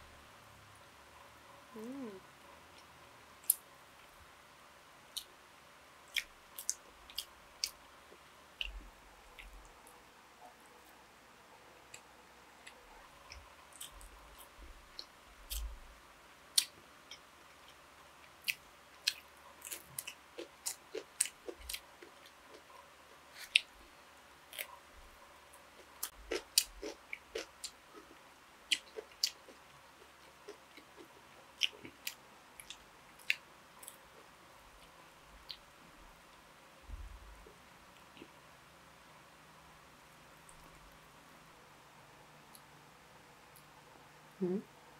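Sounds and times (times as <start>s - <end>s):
person chewing with wet smacks: 6.1s - 9.8s, 12.6s - 15.8s, 16.6s - 22.7s, 23.3s - 23.8s, 25.8s - 35.6s.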